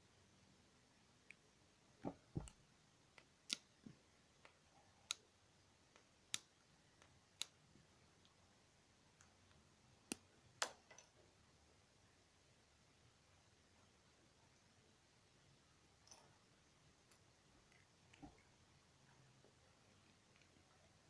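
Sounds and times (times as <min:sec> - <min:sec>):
small plastic clicks and taps: 0:02.0 - 0:05.2.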